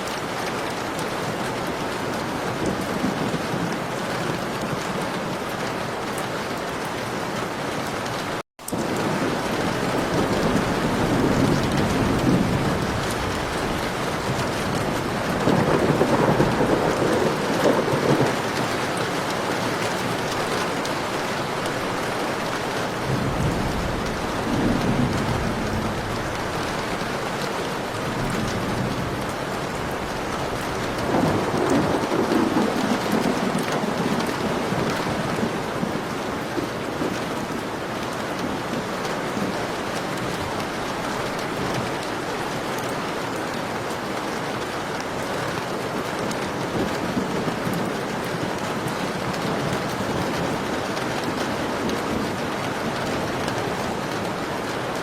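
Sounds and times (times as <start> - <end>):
heavy rain falling: 0.0 - 55.0
thunder rumbling: 8.7 - 37.9.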